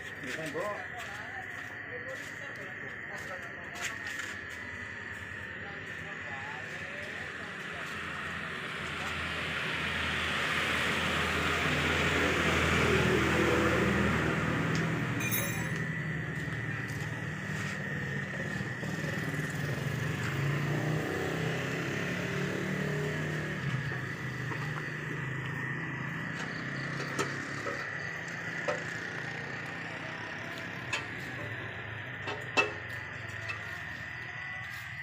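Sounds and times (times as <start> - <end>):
engine humming: 4.4 - 35.0
thin high whine: 15.1 - 20.5.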